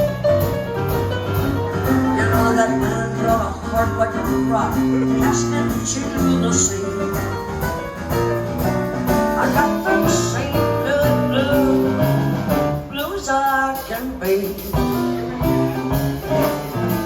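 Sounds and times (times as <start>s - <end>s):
guitar accompaniment: 0.0s - 17.0s
person singing: 1.9s - 7.2s, 9.3s - 12.2s.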